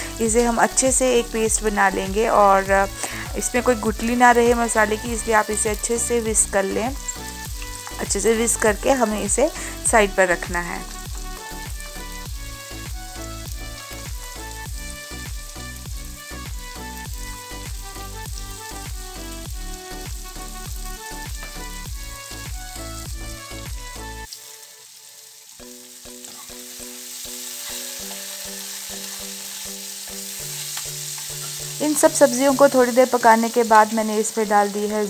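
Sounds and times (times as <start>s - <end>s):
background music with a beat: 0.0s - 24.5s
vegetables frying in oil: 0.0s - 35.0s.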